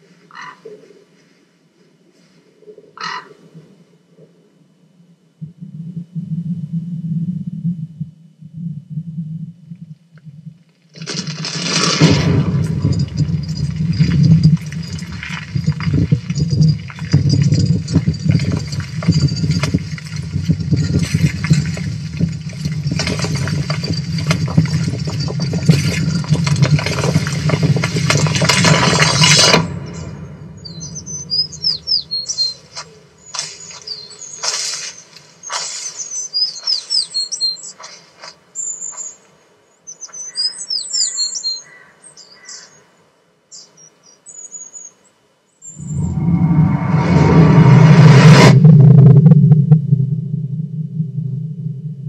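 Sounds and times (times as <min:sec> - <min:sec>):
loud low rumble: 0:12.1 - 0:32.8, 0:45.8 - 0:52.0
birds chirping and singing: 0:29.7 - 0:38.0, 0:39.9 - 0:42.8.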